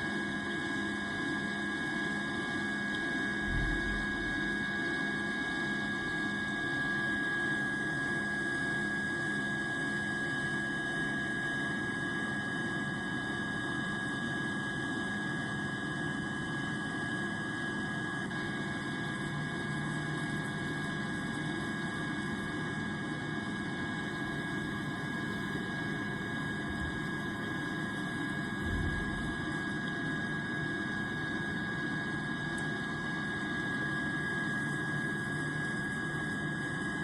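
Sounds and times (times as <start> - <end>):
airplane engine drone: 24.0 - 36.4.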